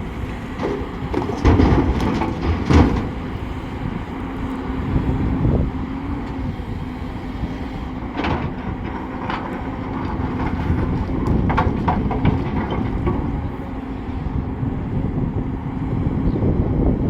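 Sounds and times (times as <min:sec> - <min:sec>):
diesel machinery rumbling: 0:00.0 - 0:17.0
metallic clanks and knocks: 0:00.6 - 0:03.4, 0:08.1 - 0:13.5.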